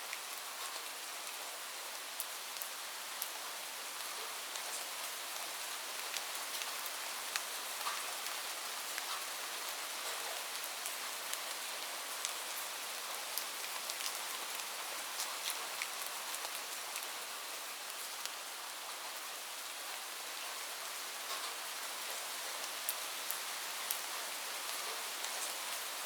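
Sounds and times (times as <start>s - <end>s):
light rain hiss: 0.0s - 26.0s
raindrops ticking on a surface: 0.1s - 20.1s, 21.0s - 26.0s.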